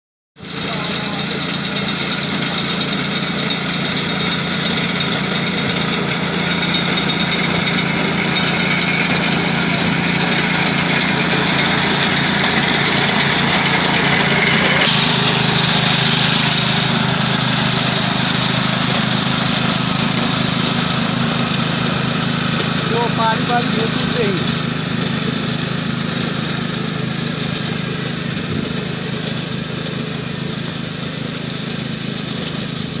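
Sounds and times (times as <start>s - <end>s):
mini-tractor engine running: 0.4s - 33.0s.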